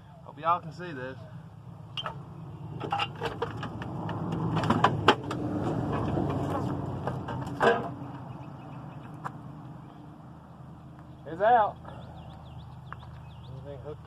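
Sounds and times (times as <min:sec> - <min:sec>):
metal clanks and knocks: 0:02.0 - 0:08.0.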